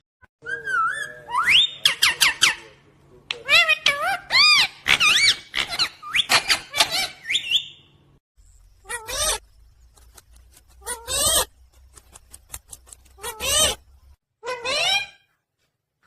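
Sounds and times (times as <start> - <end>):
parrot chirps and calls: 0.4 - 8.0, 8.8 - 9.4, 10.8 - 11.6, 13.0 - 15.4.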